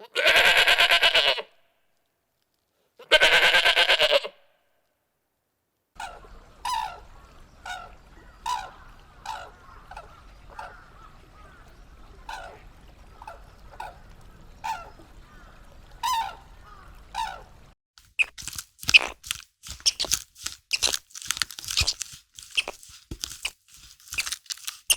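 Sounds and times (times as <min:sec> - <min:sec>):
sharp crunching: 0:18.0 - 0:24.9.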